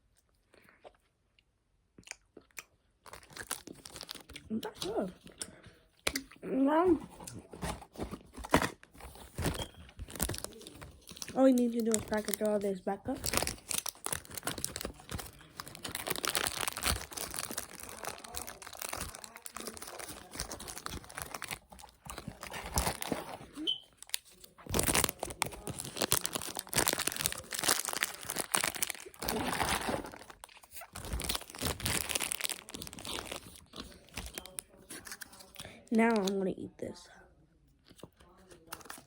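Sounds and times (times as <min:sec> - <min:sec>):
wrappers and bags crinkling: 0:03.0 - 0:05.2, 0:07.0 - 0:36.4.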